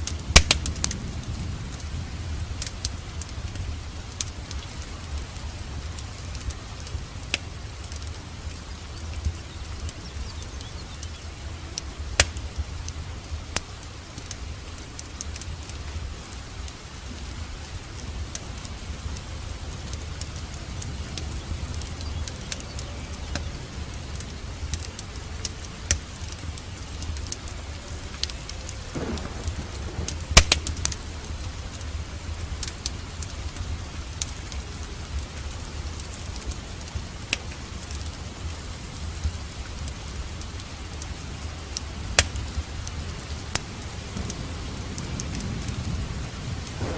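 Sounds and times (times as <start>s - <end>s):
thunder rumbling: 0.0s - 35.8s, 41.4s - 46.9s
steady rain: 0.0s - 46.9s
wood fire crackling and popping: 0.0s - 46.9s.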